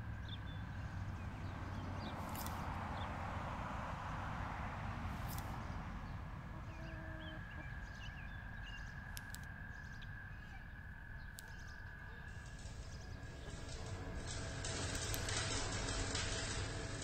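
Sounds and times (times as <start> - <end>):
birds chirping: 0.0 - 17.0
low outdoor rumble: 0.0 - 17.0
light clicks: 2.1 - 2.8, 5.2 - 5.6, 9.0 - 9.8, 11.3 - 16.9.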